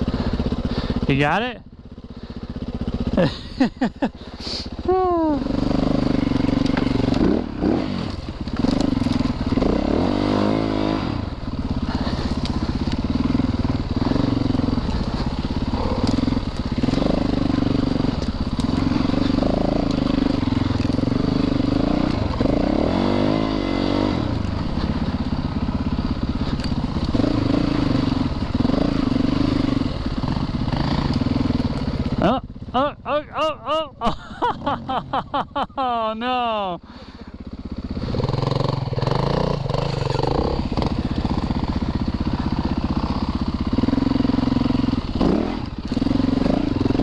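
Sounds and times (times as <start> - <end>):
dirt bike engine revving: 2.2 - 47.0.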